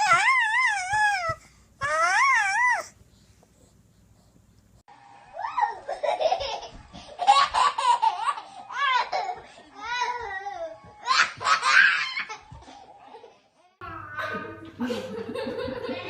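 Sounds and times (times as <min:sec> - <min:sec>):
baby laughing: 0:05.4 - 0:09.4.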